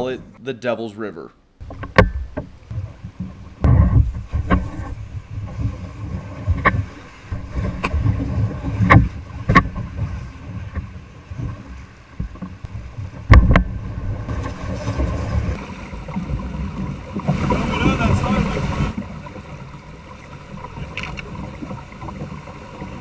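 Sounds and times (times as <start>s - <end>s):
knocks against kayak hull: 1.6s - 15.6s
rushing water: 1.6s - 23.0s
wind rumble on microphone: 1.6s - 23.0s.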